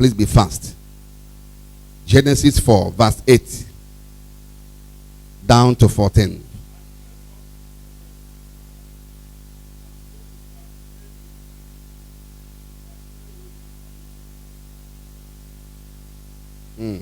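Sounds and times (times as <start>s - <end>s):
electrical hum with hiss: 0.0s - 17.0s.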